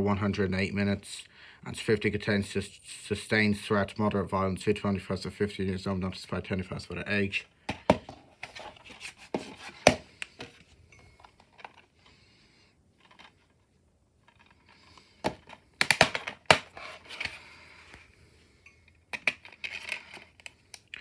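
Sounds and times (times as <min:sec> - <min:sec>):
plastic case clicks and snaps: 0:15.3 - 0:16.7.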